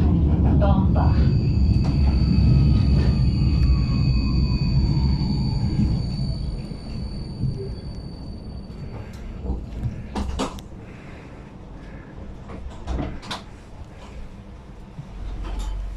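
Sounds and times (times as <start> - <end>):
tram running rumble: 0.0 - 15.9
steady high whine: 0.7 - 12.0.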